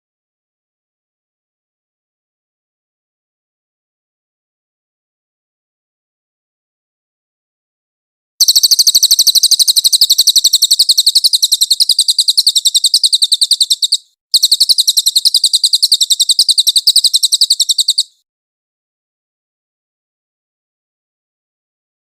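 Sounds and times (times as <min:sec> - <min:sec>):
songbird trilling: 0:08.4 - 0:18.2.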